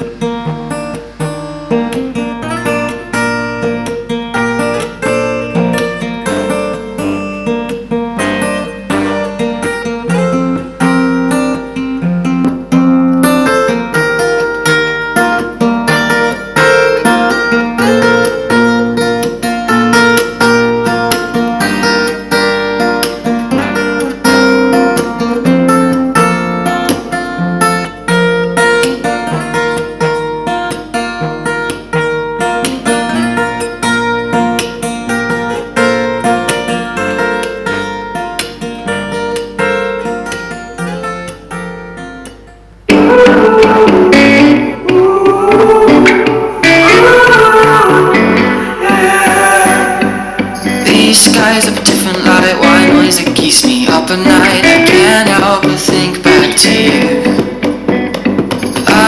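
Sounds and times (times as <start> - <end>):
acoustic guitar music through speaker: 0.0 - 59.0.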